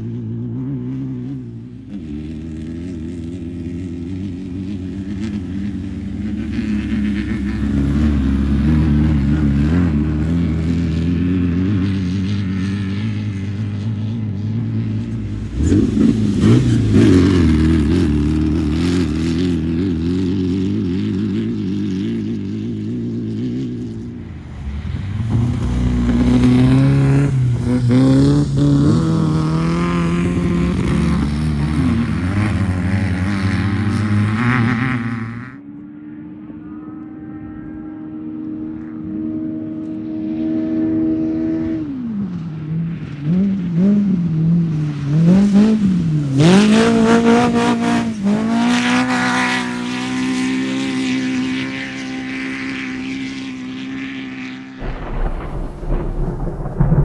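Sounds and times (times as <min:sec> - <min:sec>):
race car engine revving: 0:14.8 - 0:35.5, 0:43.5 - 0:53.3.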